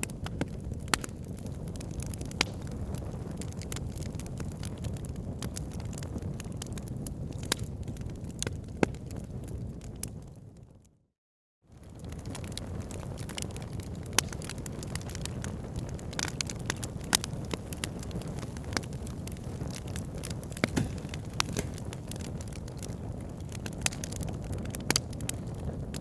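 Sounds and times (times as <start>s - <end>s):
wood fire crackling in fireplace: 0.0s - 10.2s, 11.7s - 26.0s.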